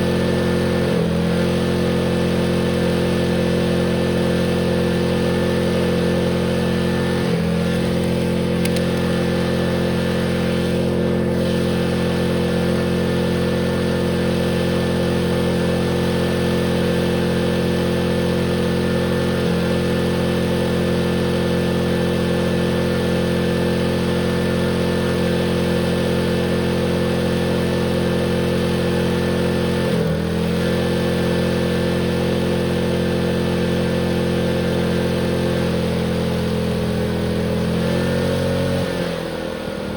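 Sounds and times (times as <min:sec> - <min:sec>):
tractor engine running: 0:00.0 - 0:38.1.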